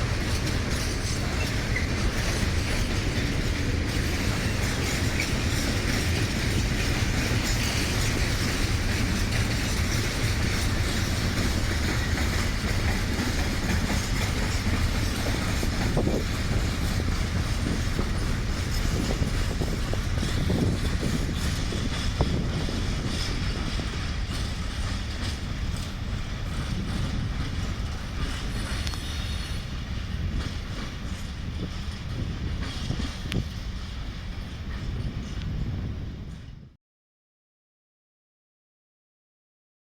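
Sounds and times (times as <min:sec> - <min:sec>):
train wheels clicking: 0:00.0 - 0:35.6
freight train rumble: 0:00.0 - 0:36.8.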